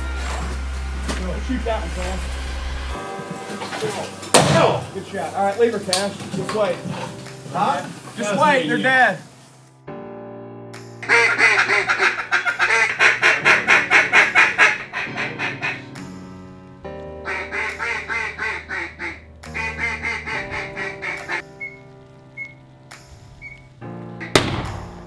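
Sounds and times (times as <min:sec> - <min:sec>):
background music: 0:00.0 - 0:25.0
duck quacking: 0:11.0 - 0:16.0, 0:17.3 - 0:21.8.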